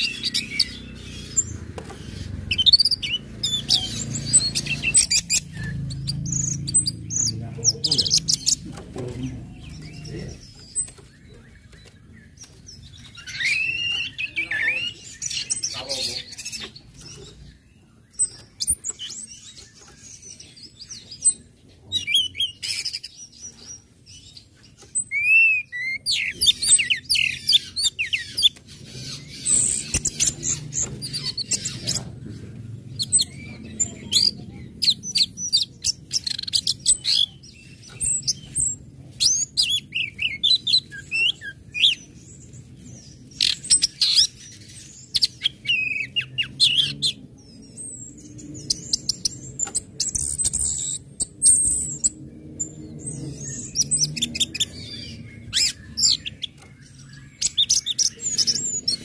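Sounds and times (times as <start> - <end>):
thrush singing chirps and whistles: 0.0 - 1.6, 9.6 - 16.8.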